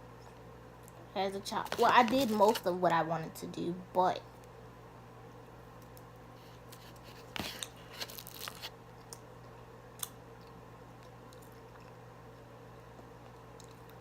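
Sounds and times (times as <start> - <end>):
quiet chewing: 5.8 - 14.0.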